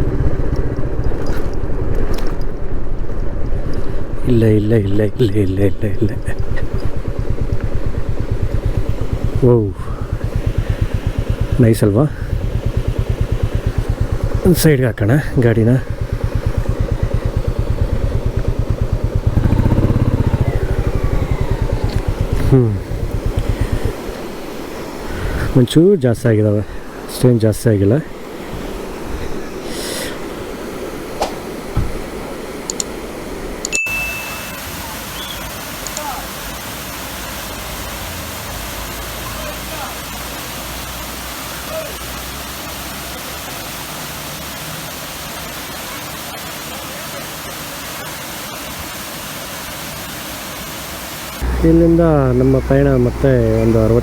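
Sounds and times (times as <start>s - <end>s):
motorcycle engine idling: 0.0s - 25.5s, 51.4s - 54.0s
waterfall rushing: 3.6s - 54.0s.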